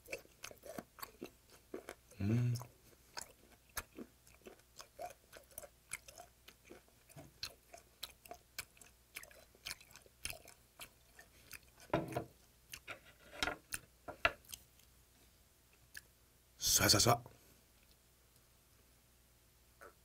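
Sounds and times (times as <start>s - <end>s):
wet chewing: 0.0s - 15.0s.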